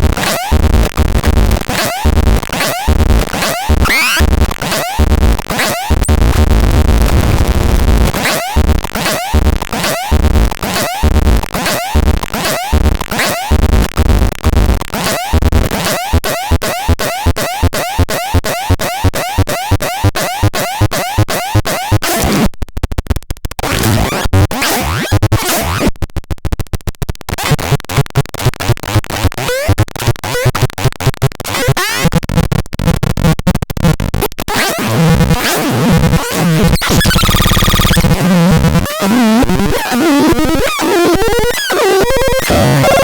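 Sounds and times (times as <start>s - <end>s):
stuttering electronic tones: 0.0s - 43.0s
electronic chirps: 3.8s - 4.3s, 36.8s - 38.2s
warbling electronic tones: 36.7s - 38.7s.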